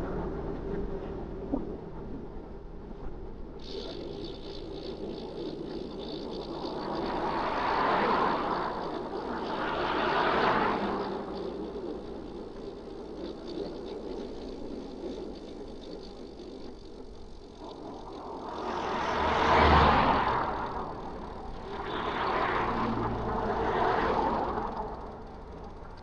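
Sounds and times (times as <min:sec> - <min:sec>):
vehicles passing by: 0:18.2 - 0:26.0.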